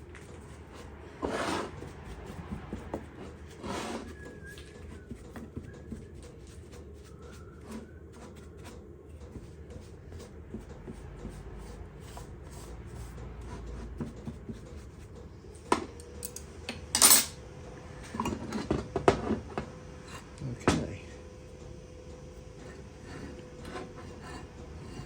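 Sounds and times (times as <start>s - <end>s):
metal tools clanking: 16.2s - 17.4s.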